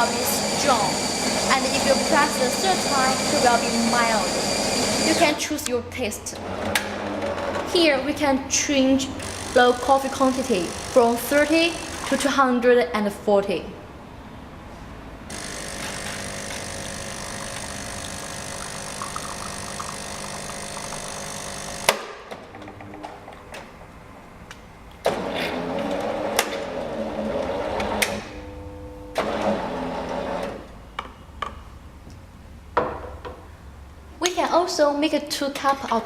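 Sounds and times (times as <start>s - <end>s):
coffee grinder motor: 0.0s - 5.4s, 15.3s - 21.9s
water pump buzzing: 0.0s - 5.4s, 9.2s - 9.8s, 11.7s - 12.2s, 15.3s - 22.0s.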